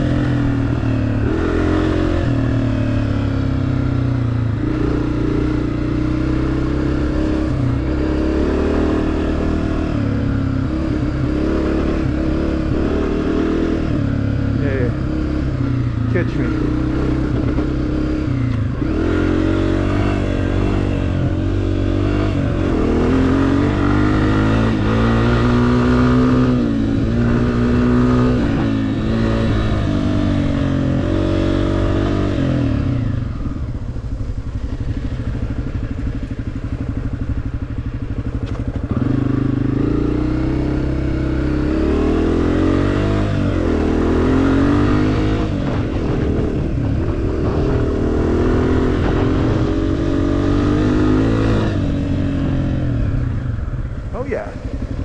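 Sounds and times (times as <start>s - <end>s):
dirt bike engine revving: 0.0s - 4.0s, 4.6s - 33.5s, 38.8s - 53.0s.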